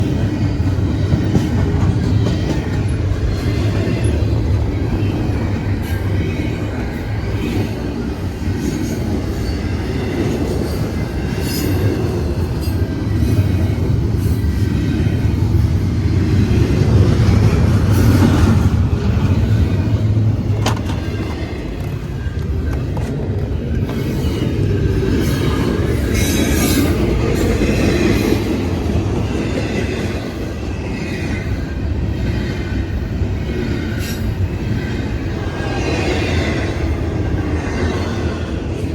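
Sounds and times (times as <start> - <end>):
train rumble: 0.0 - 38.9
train brake squeal: 33.7 - 34.9.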